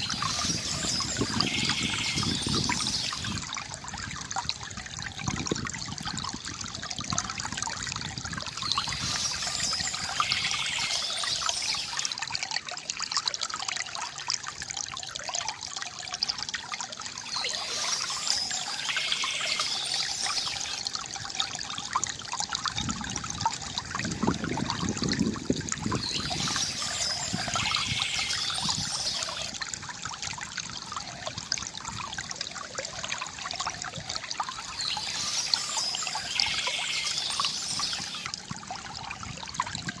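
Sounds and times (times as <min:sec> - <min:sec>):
birds chirping: 0:00.0 - 0:03.4, 0:08.5 - 0:12.1, 0:17.2 - 0:20.8, 0:25.9 - 0:29.6, 0:34.5 - 0:38.3
water gushing: 0:00.0 - 0:40.0
water trickling and gurgling: 0:00.0 - 0:40.0.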